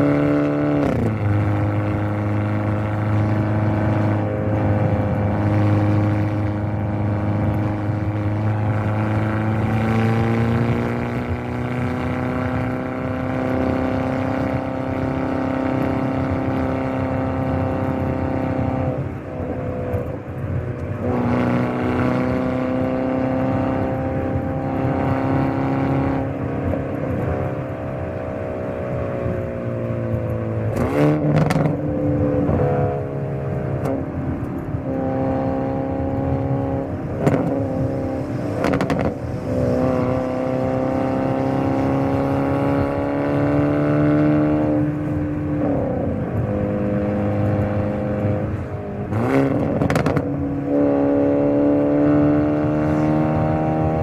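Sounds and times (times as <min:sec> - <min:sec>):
car engine revving through gears: 0:00.0 - 0:54.0.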